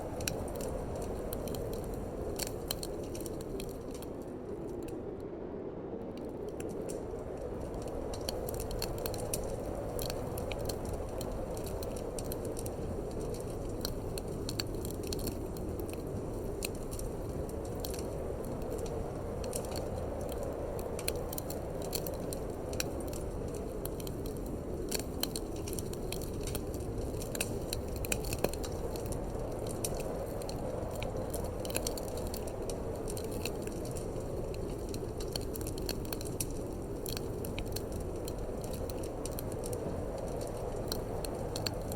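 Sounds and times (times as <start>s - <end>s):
wood fire crackling and popping: 0.0s - 5.4s, 6.0s - 41.9s.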